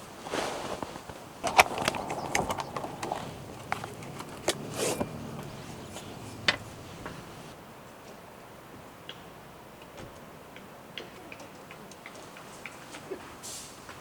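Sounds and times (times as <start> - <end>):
rustling: 0.0 - 7.6
objects clicking and knocking: 1.4 - 7.4.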